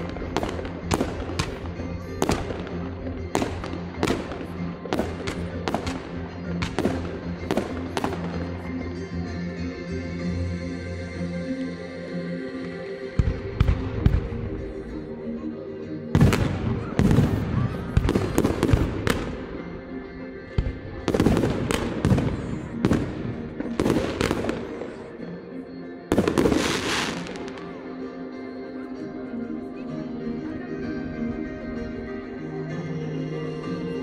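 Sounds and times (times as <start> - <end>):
fireworks exploding: 0.0 - 8.5, 16.2 - 19.4, 20.6 - 25.0, 26.1 - 27.8
music from sound system: 0.0 - 34.0.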